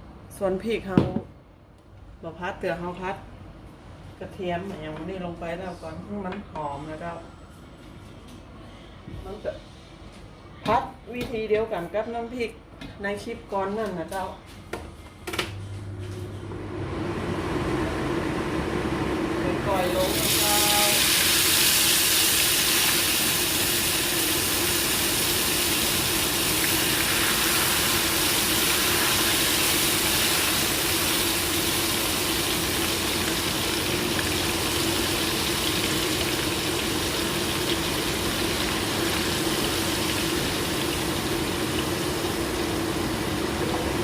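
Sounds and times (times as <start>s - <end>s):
garlic sizzling in hot oil: 19.8s - 43.6s.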